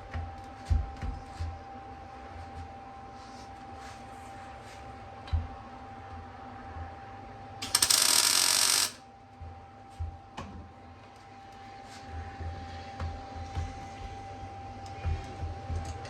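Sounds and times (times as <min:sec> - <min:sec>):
welding arc crackling: 0:07.6 - 0:09.0.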